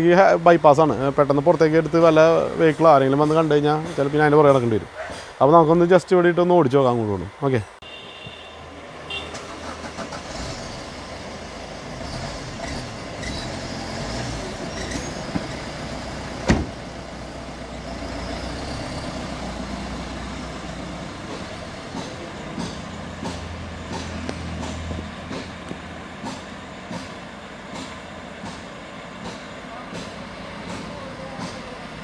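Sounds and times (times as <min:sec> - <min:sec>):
diesel engine running: 0:08.6 - 0:32.0
sharp thump: 0:16.4 - 0:16.8.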